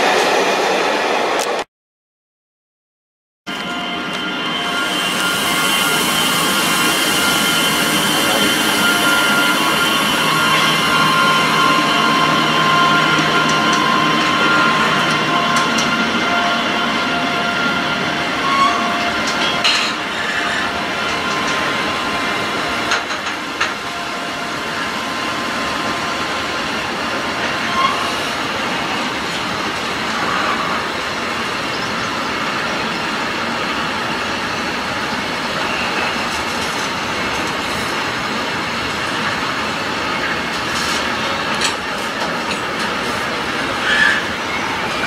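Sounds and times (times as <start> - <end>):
steel wheels rumbling on rail: 3.5 - 45.0
high wheel squeals: 3.6 - 26.3, 27.4 - 28.7, 43.6 - 45.0.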